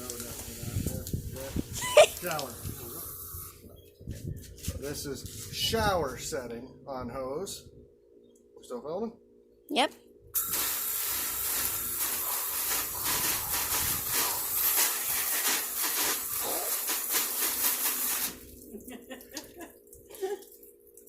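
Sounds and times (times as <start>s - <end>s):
hose nozzle spraying water: 10.4s - 18.7s
water dripping: 18.4s - 21.0s.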